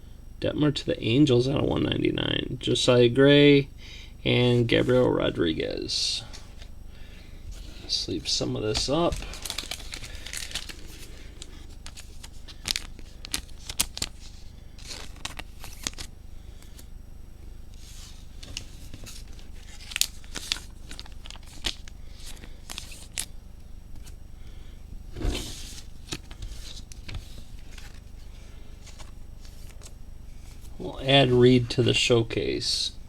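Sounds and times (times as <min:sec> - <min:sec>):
plastic sleeves rustling and crinkling: 0:07.5 - 0:16.9, 0:17.8 - 0:24.2, 0:25.1 - 0:31.1.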